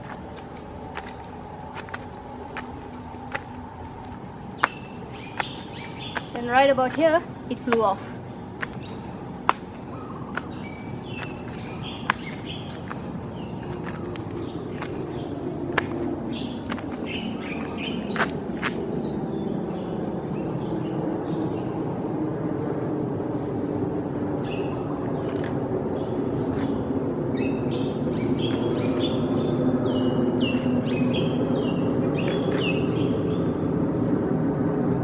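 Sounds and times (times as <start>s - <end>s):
low engine rumble: 0.0s - 35.0s
small bird chirping: 4.6s - 8.0s.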